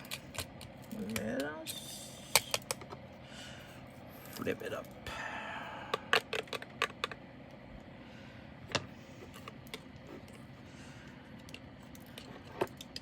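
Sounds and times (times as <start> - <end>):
plastic containers clicking: 6.0 - 7.2.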